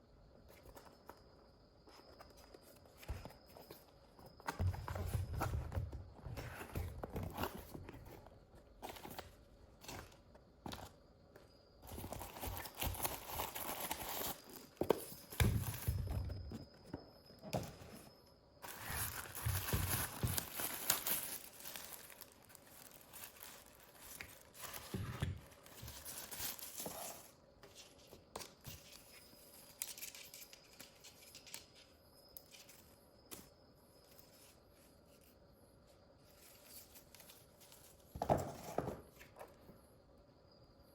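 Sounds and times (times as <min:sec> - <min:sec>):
packaging crinkling and rustling: 0:11.8 - 0:16.4, 0:18.6 - 0:27.3.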